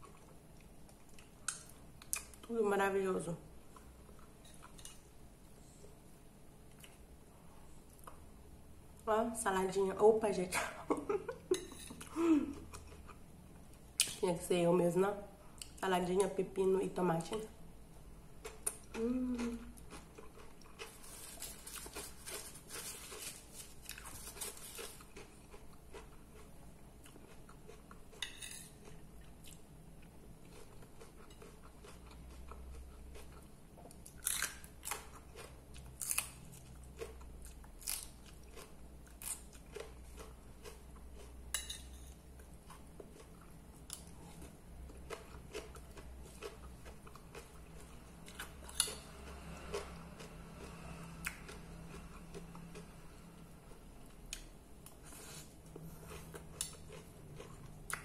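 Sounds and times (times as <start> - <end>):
chewing and crunching salad: 0.0 - 2.6, 3.6 - 5.1, 11.1 - 14.2, 18.4 - 58.0.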